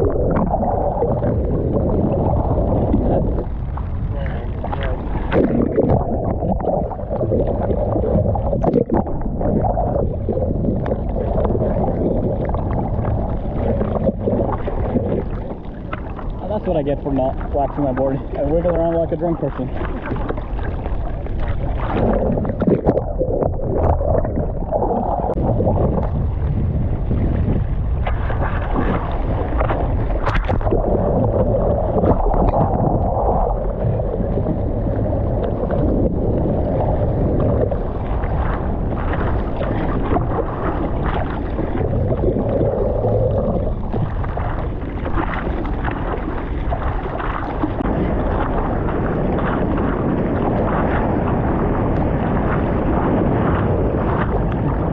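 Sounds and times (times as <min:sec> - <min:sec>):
ocean surf splashing: 0:00.0 - 0:54.9
wind buffeting microphone: 0:00.0 - 0:54.9.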